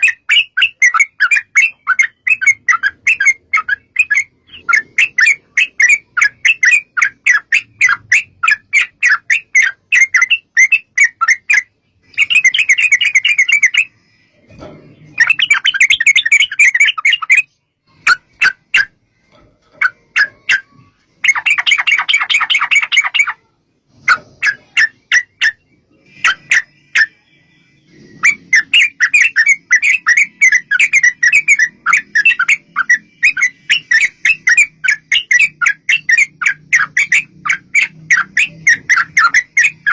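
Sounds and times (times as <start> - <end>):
bulbul calling in rapid chatters: 0.0 - 14.0, 15.2 - 18.9, 19.8 - 23.4, 28.0 - 39.9.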